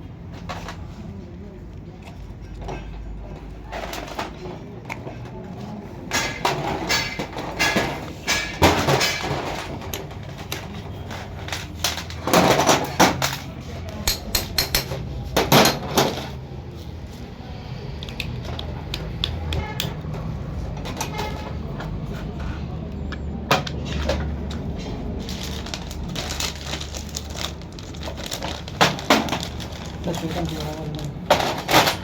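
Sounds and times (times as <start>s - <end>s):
metal tools clanking: 6.0s - 10.2s.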